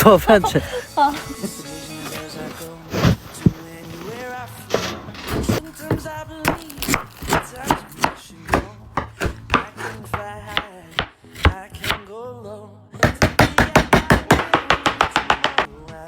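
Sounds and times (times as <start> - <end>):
knife chopping on cutting board: 6.5 - 12.0, 13.0 - 15.7.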